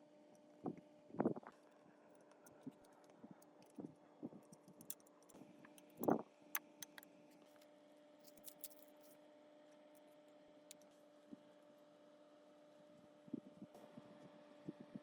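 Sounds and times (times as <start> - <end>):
faint steady hum: 0.0 - 15.0
metal parts clicking: 8.3 - 8.9.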